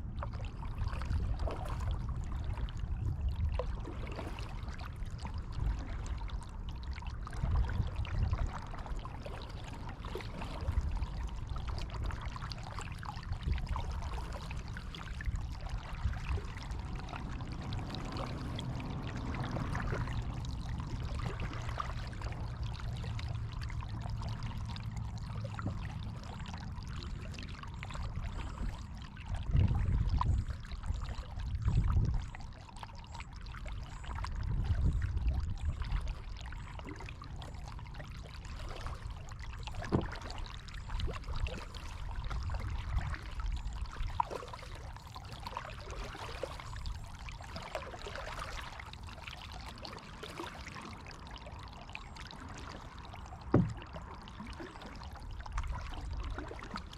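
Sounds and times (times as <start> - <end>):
water splashing off paddle: 36.8 - 56.9.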